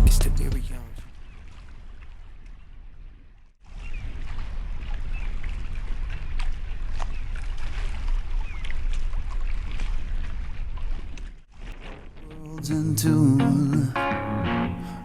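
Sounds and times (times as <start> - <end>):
wind rumbling on microphone: 1.2 - 13.0
water washing: 5.4 - 15.0.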